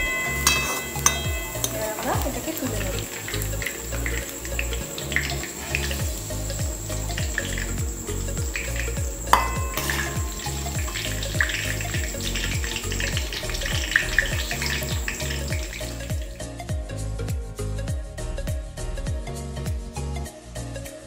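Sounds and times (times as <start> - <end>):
metal spoon clink: 0.0 - 3.9, 9.3 - 12.6
hot oil sizzling: 0.0 - 16.7
background music with beat: 0.0 - 21.0.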